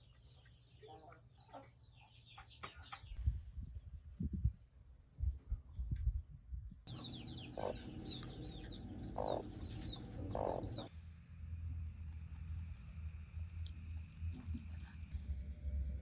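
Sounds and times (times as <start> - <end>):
chickens clucking: 6.9 - 10.9
high peeping calls: 6.9 - 10.9
steady low hum: 6.9 - 16.0.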